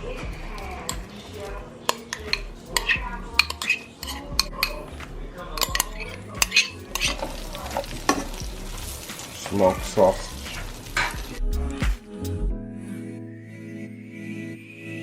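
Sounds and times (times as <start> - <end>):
utensil stirring in pot: 0.0 - 11.4
utensil clinking against pot: 0.5 - 8.5, 10.9 - 11.4.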